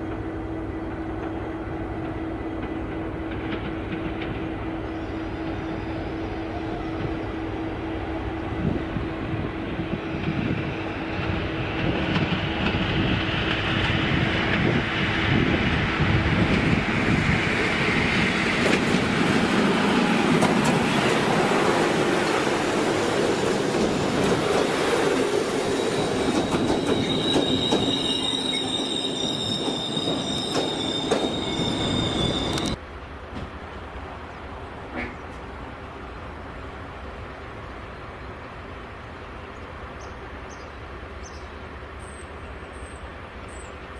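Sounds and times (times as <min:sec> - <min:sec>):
train wheels rumbling: 0:00.0 - 0:39.9
high wheel squeal: 0:24.9 - 0:32.8.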